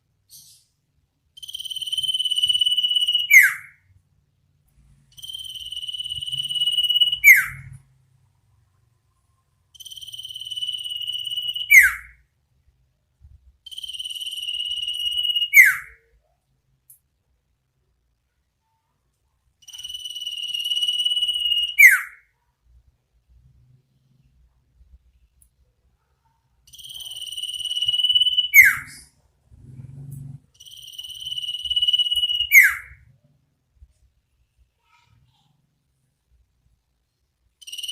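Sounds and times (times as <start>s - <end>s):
bird trilling and whistling: 1.4s - 3.8s, 5.2s - 7.8s, 9.8s - 12.2s, 13.7s - 16.0s, 19.7s - 22.2s, 26.7s - 29.1s, 30.6s - 33.0s.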